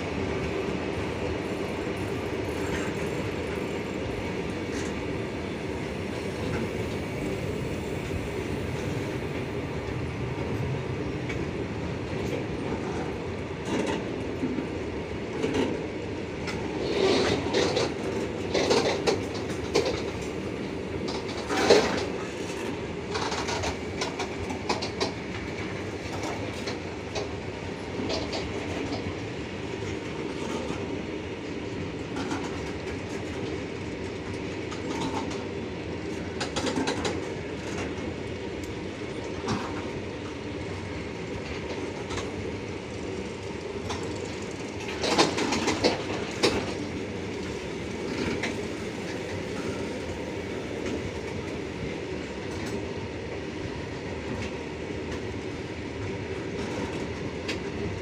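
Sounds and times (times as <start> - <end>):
freight train rolling past: 0.0 - 58.0
wheels clacking and knocking: 16.4 - 20.4, 21.0 - 27.4, 28.0 - 29.2, 36.1 - 38.0, 41.4 - 49.8.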